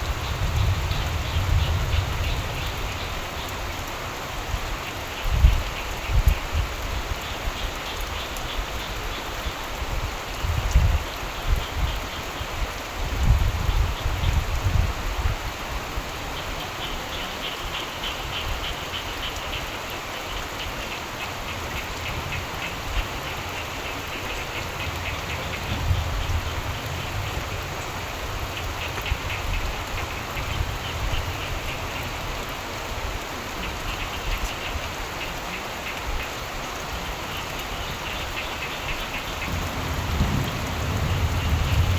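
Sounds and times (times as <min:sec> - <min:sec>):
low thunder rumbles: 0:00.0 - 0:03.4, 0:24.4 - 0:31.7, 0:39.3 - 0:41.9
frogs croaking: 0:00.0 - 0:10.3, 0:16.1 - 0:41.9
steady rain falling: 0:00.0 - 0:41.9.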